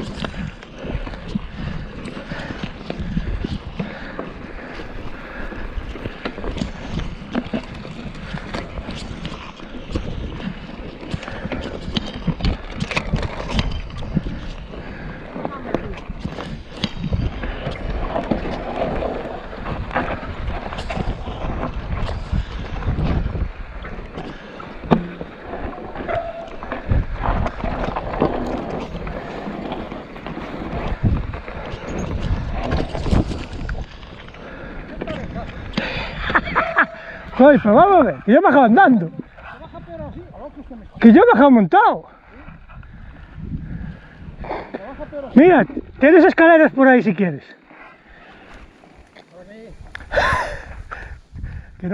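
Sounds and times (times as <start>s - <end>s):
bike knocking and rattling: 0.0s - 36.8s
wind rumbling on microphone: 0.0s - 51.9s.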